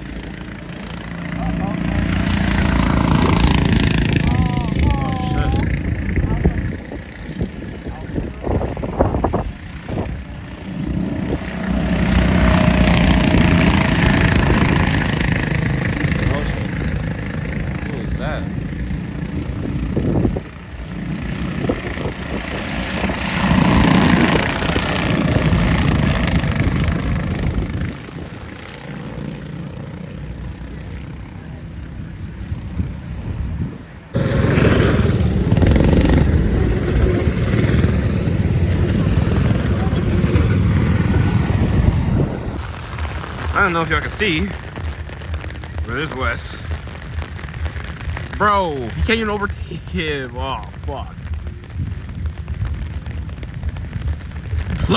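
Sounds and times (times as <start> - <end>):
go-kart engines droning: 0.0 - 31.8, 34.1 - 46.2.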